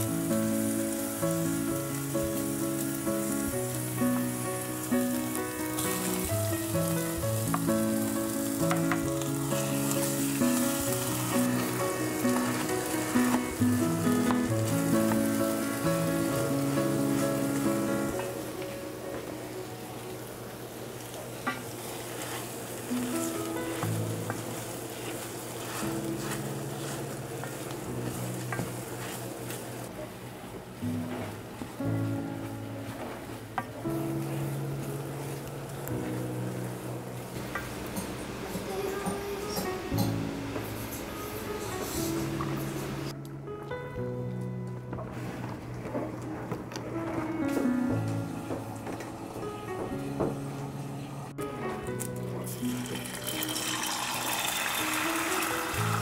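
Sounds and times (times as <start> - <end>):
soft background music: 0.0 - 29.6, 30.6 - 56.0
food sizzling in a pan: 0.0 - 29.9, 32.4 - 43.2, 52.4 - 56.0.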